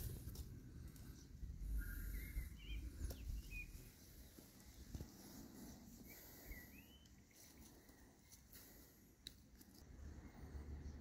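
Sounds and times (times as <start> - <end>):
outdoor background noise: 0.0 - 11.0
curling bird chirps: 1.1 - 4.9, 5.9 - 8.0.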